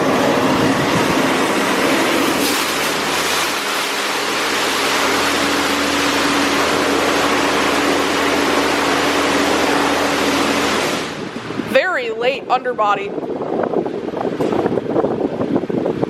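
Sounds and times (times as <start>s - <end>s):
high-pressure water spraying: 0.0s - 11.4s
machine hum: 0.0s - 11.8s.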